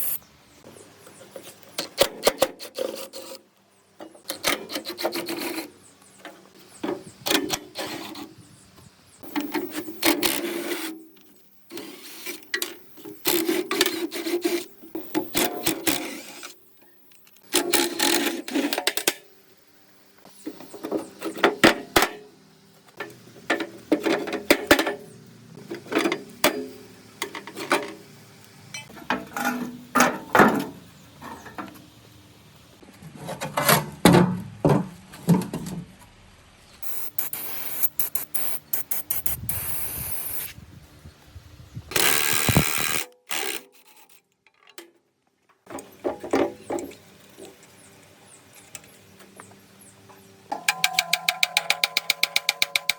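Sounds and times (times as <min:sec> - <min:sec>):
steady hissing noise: 0:36.3 - 0:43.6.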